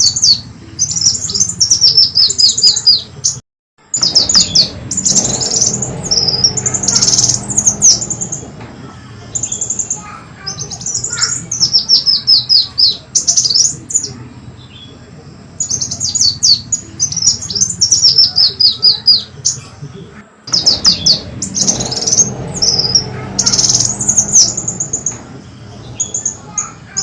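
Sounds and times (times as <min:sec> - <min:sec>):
sunbird song high chirping: 0:00.0 - 0:08.6, 0:09.3 - 0:19.6.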